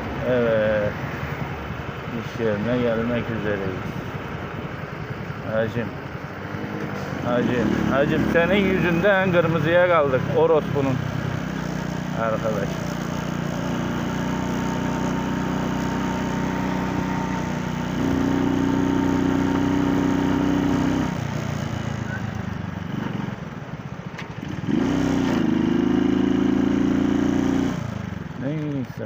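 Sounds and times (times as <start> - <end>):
small motorcycle engine: 2.0 - 28.9.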